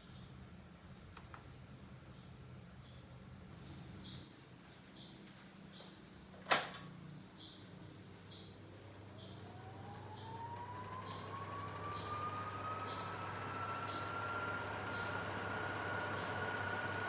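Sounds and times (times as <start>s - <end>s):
fan air noise: 0.0s - 17.0s
box fan motor whine: 8.9s - 17.0s.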